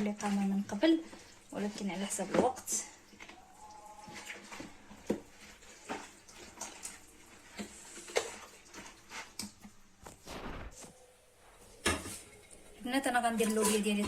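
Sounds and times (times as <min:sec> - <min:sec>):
hands squishing raw chicken: 0:00.2 - 0:09.9.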